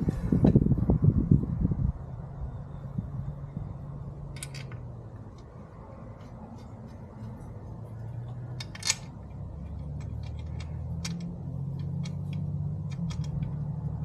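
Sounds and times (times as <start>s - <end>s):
small metal clicks and taps: 8.2s - 14.0s.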